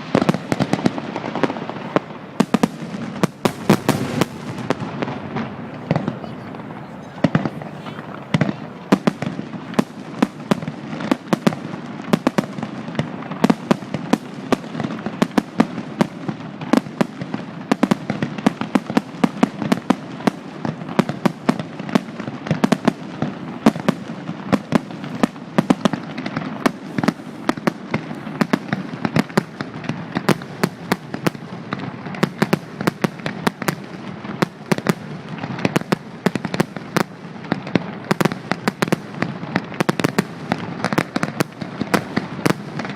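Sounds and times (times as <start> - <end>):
fireworks bangs and cracks: 0.0 - 42.9
rumble of bursting shells: 3.3 - 5.6.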